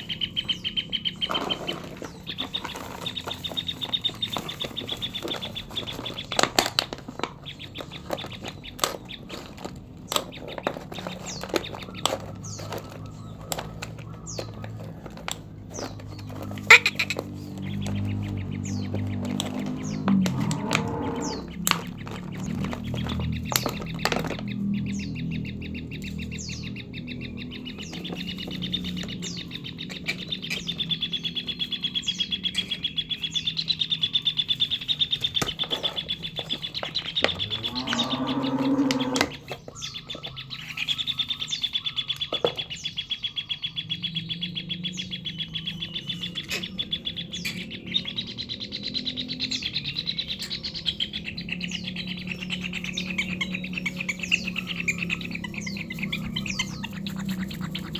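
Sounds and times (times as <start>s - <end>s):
bird chick chittering call: 15.8s - 57.9s.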